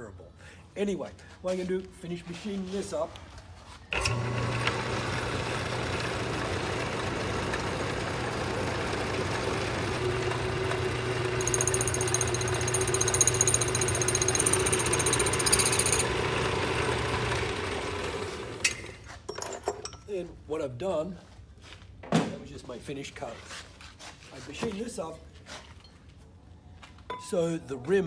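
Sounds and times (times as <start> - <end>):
metal lathe running: 4.0 - 19.0.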